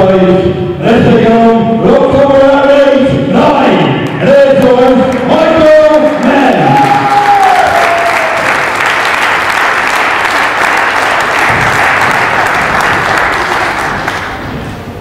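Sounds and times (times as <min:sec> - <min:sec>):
crowd applauding: 0:05.1 - 0:14.6.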